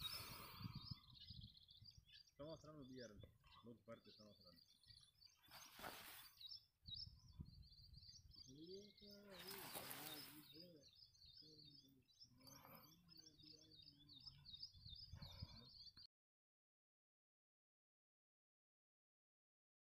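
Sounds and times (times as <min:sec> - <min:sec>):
faint birds chirping: 0:00.0 - 0:16.1.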